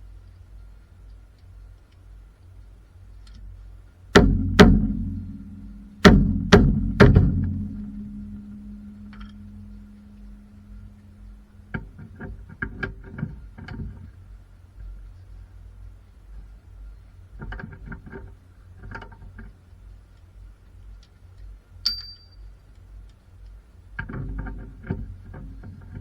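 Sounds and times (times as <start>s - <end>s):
hammer blows on ringing metal: 4.2s - 12.5s.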